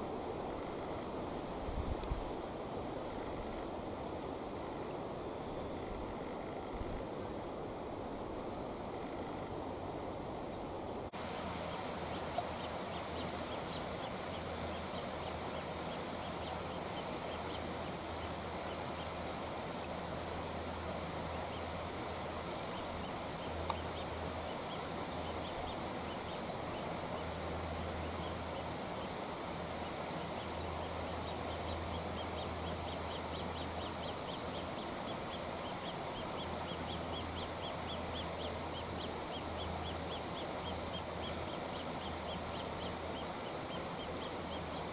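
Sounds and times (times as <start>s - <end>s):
creek water rushing: 0.0s - 44.9s.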